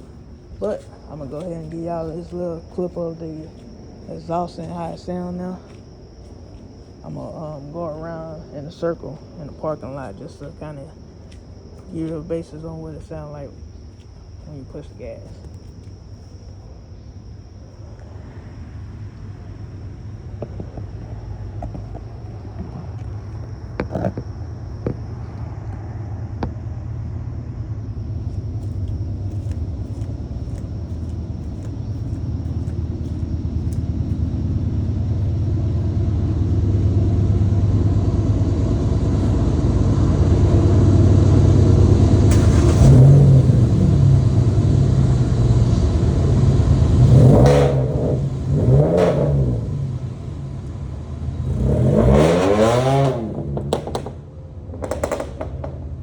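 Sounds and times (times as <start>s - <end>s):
car engine revving: 18.8s - 56.0s.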